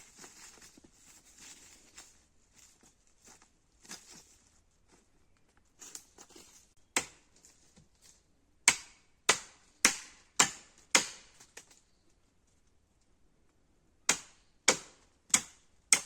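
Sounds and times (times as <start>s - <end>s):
tool striking wood: 8.7s - 11.3s.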